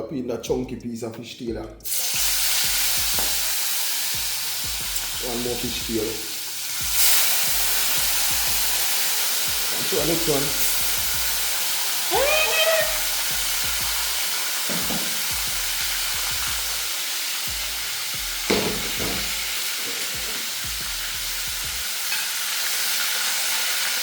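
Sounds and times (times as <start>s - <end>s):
fish frying in hot oil: 1.8s - 24.0s
sharp knock: 18.5s - 19.3s.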